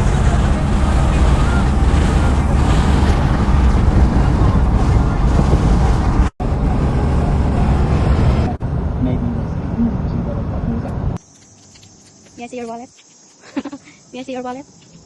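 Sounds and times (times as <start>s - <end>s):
wind rushing: 0.0s - 11.2s
engine drone: 0.0s - 11.3s.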